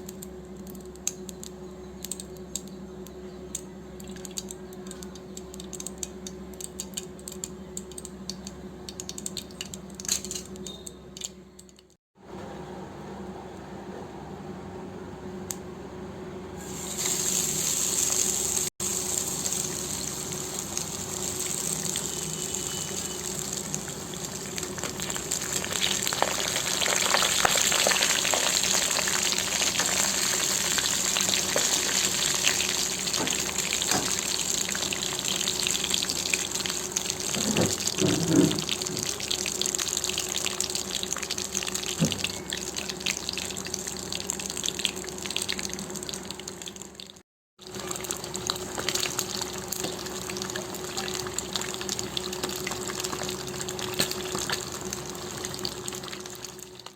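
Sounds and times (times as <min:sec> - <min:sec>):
fish deep-frying in oil: 0:16.6 - 0:56.9.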